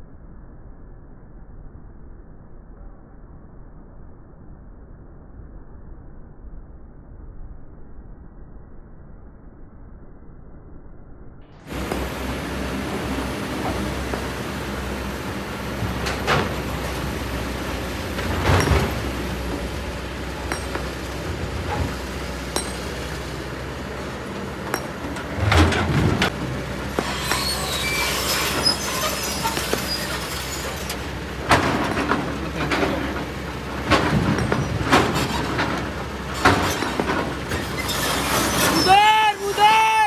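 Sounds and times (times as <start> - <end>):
excavator diesel engine running: 11.7 - 39.7
stones scraping and clattering: 18.0 - 23.1, 24.7 - 38.8.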